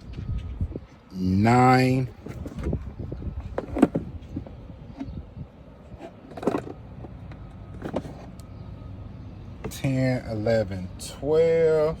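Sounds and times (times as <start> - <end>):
handling knocks and rustles: 2.1 - 5.2, 6.0 - 8.5.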